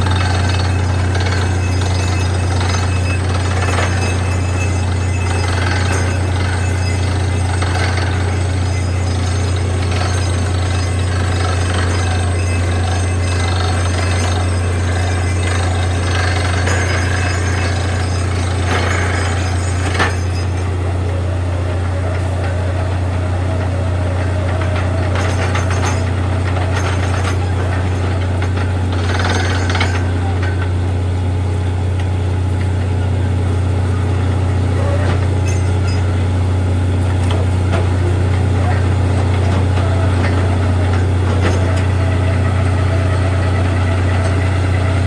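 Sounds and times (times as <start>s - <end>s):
machine clatter: 0.0s - 20.8s, 23.6s - 30.8s, 35.0s - 36.3s, 37.1s - 45.0s
drilling rig droning: 0.0s - 45.0s.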